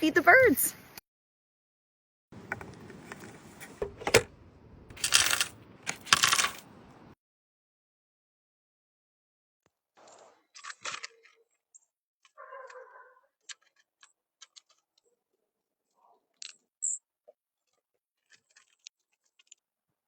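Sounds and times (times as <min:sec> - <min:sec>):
rustling of bird food: 0:17.7 - 0:19.6.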